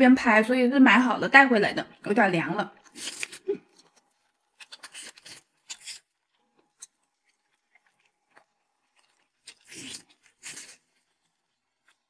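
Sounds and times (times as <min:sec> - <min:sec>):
faint chewing noises: 0:02.7 - 0:12.0.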